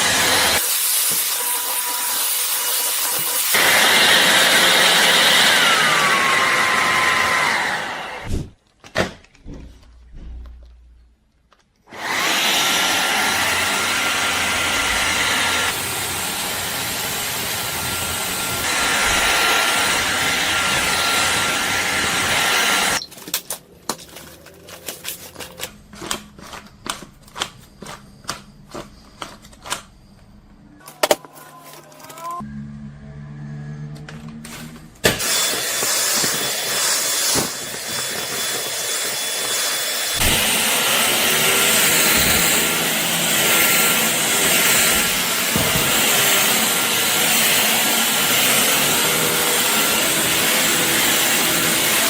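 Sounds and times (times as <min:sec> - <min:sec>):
cordless vacuum whining: 0:00.0 - 0:08.4, 0:11.9 - 0:23.0, 0:33.9 - 0:52.0.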